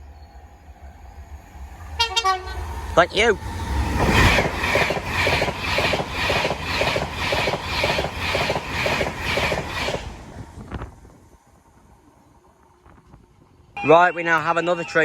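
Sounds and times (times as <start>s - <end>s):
electric train passing at speed: 0.0s - 15.0s
wheels clickety-clack: 4.0s - 10.8s.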